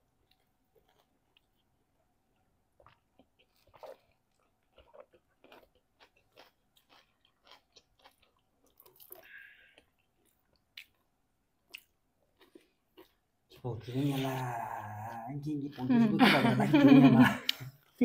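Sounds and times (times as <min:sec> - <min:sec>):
chewing and wet mouth smacks: 0:02.4 - 0:13.2.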